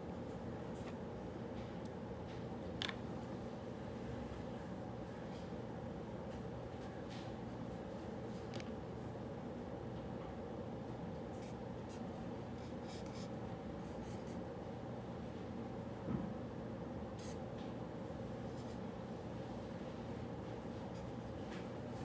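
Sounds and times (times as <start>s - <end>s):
steady room hum: 0.0s - 22.0s
handwriting on paper: 11.4s - 14.4s, 17.2s - 17.4s.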